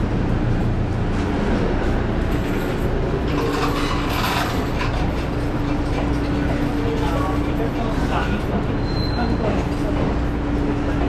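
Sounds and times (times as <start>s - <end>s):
train car rumble and hum: 0.0s - 11.0s
rustling clatter: 1.1s - 8.8s.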